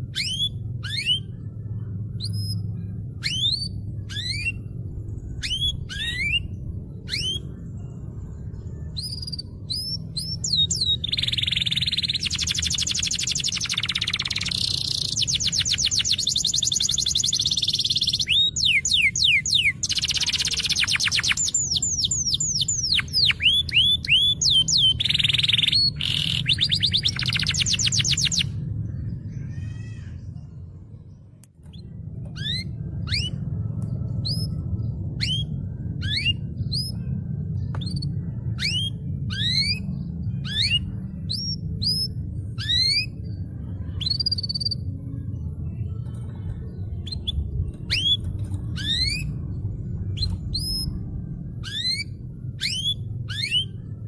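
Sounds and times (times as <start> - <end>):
canary trilling: 0.0 - 7.7, 8.9 - 30.0, 31.7 - 33.5, 37.9 - 43.4, 47.0 - 51.0, 51.6 - 53.9
low hum: 0.0 - 54.0.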